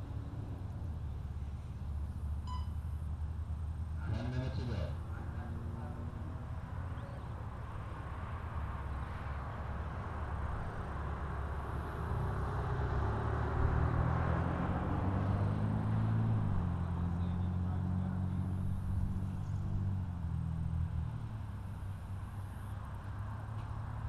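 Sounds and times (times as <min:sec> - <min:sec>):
low engine hum: 0:00.0 - 0:24.0.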